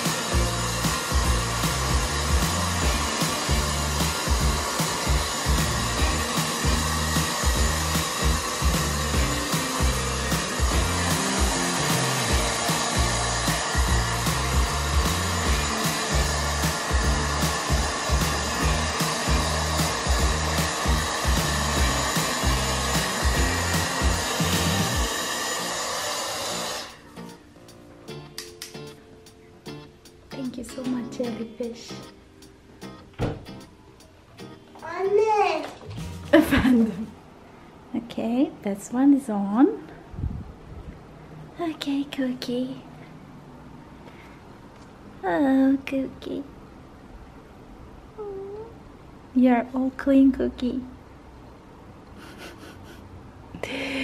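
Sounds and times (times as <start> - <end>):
background music with beat: 0.0 - 25.1, 27.2 - 34.9, 35.9 - 36.8
hair dryer blowing air: 0.0 - 27.1.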